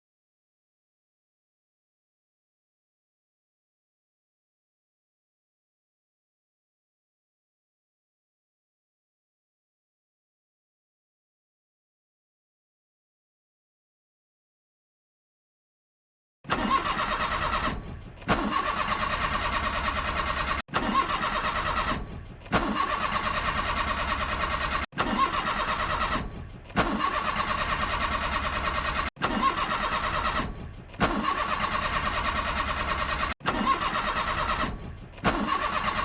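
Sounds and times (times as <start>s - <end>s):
starter motor cranking engine: 16.5s - 36.0s.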